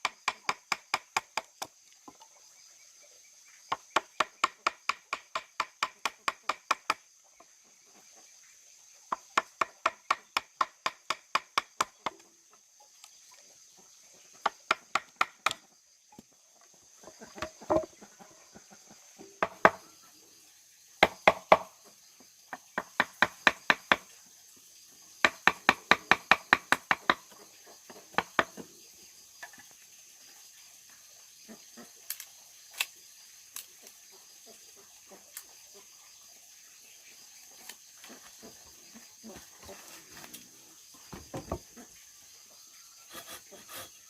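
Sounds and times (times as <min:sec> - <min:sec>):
high insect drone: 0:19.2 - 0:44.0.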